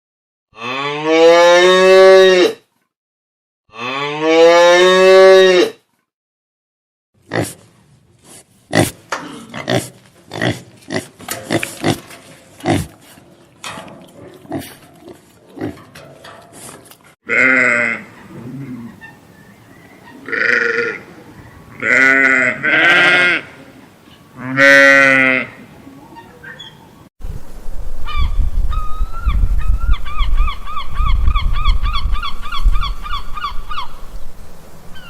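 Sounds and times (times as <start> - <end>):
animal grunts and snuffles: 7.3 - 17.2
sheep bleating: 17.3 - 18.1, 20.2 - 21.1, 21.8 - 23.6, 24.4 - 25.6.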